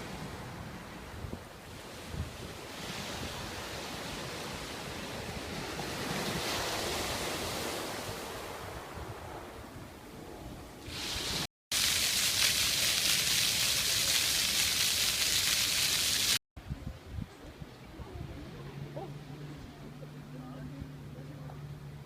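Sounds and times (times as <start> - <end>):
sea wave hissing: 10.8 - 11.5
wind buffeting microphone: 16.6 - 19.1.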